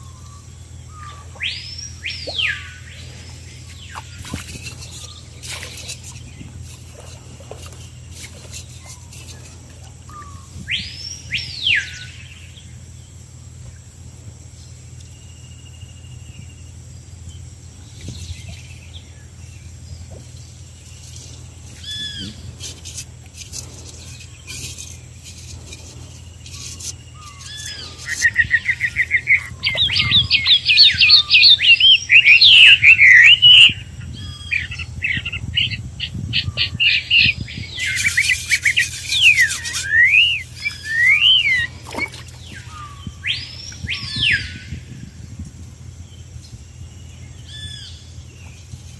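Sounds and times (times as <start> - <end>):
whistled bird notes: 0.0 - 7.2, 21.2 - 22.8, 25.7 - 44.9
fast warbling birdsong: 0.0 - 48.9
steady low hum: 0.0 - 48.9
short bird calls: 21.3 - 22.9.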